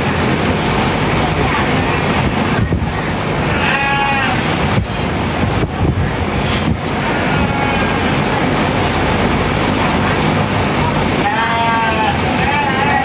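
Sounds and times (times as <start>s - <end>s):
sheep bleating: 3.5s - 4.4s, 11.2s - 13.0s.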